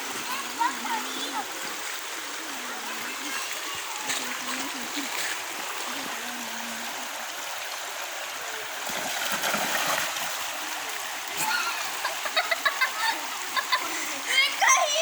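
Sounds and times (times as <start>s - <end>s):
river water over rocks: 0.0s - 15.0s.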